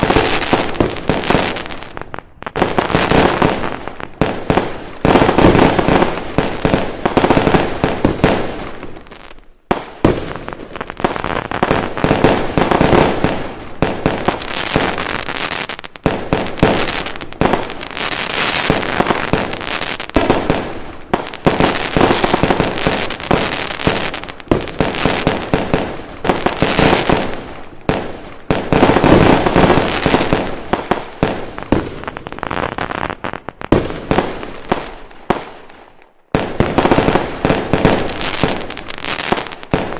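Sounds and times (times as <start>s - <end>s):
fireworks cracks and bangs: 0.0s - 39.9s.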